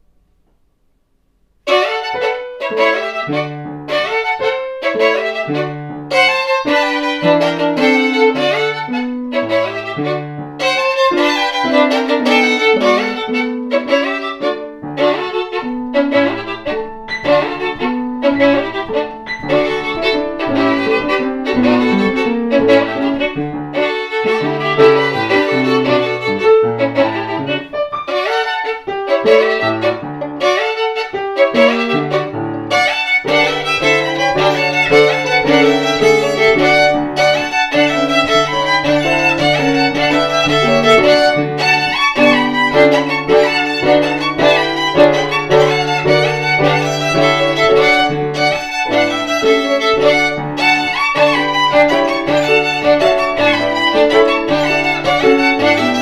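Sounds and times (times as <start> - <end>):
bowed violin: 1.6 - 56.0
piano accompaniment: 1.6 - 56.0.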